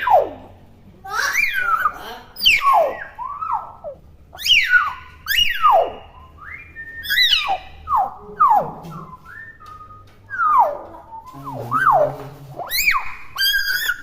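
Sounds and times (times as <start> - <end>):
myna bird whistling calls: 1.2 - 14.0.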